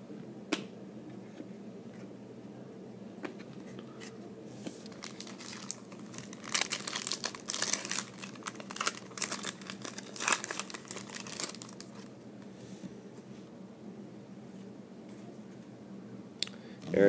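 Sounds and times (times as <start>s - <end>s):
foil wrapper crinkling: 4.8s - 12.1s.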